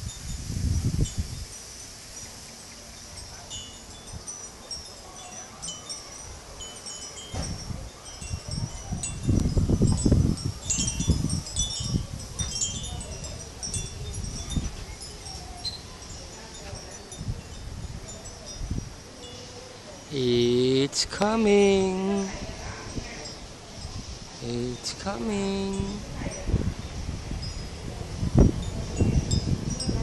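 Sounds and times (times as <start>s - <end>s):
wind chimes tinkling: 0.0s - 30.0s.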